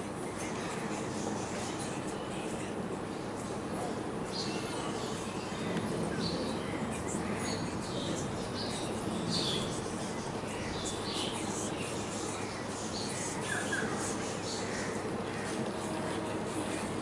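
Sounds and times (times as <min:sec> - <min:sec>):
birds chirping: 0:00.0 - 0:17.0
low background noise: 0:00.0 - 0:17.0.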